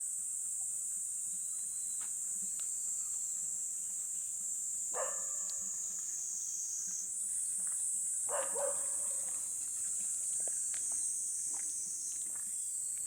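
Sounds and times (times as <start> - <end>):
crickets and night insects chirping: 0.0 - 13.0
dog barking: 5.0 - 5.6, 8.3 - 9.4.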